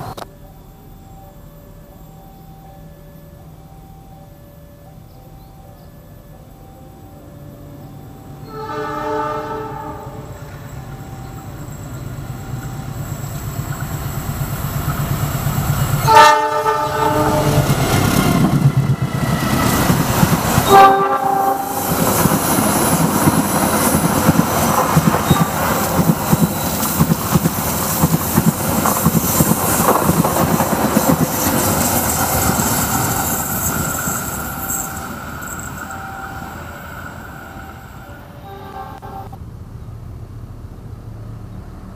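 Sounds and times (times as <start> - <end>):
train horn blasts: 8.4 - 10.6, 16.0 - 17.8, 20.6 - 22.0, 37.7 - 39.4
train wheels clattering on rails: 17.0 - 36.3.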